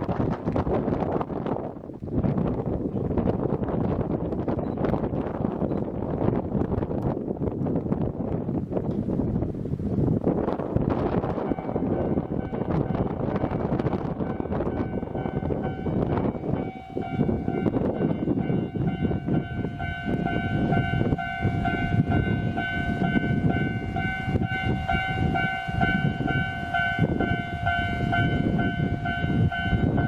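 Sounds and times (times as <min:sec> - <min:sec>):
train wheels rumbling on rails: 0:00.0 - 0:30.0
pulsing high tone: 0:11.4 - 0:30.0.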